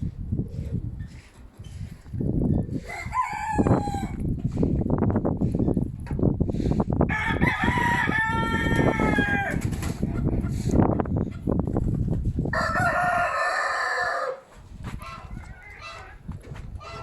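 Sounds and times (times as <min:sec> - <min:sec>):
wind rumble on microphone: 0:00.0 - 0:17.0
rooster crowing: 0:02.9 - 0:04.2, 0:07.1 - 0:09.6, 0:12.5 - 0:14.4.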